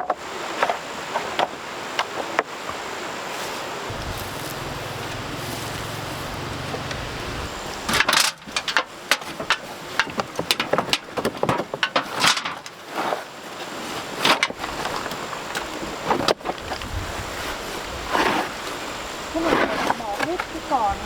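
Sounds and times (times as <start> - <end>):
low hum: 3.9 - 8.1.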